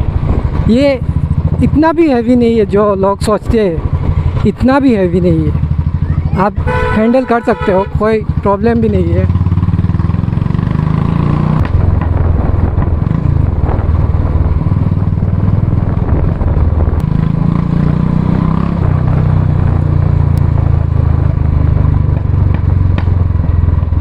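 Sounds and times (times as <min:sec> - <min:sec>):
motorcycle engine thumping: 0:11.6 - 0:17.2, 0:18.8 - 0:24.0.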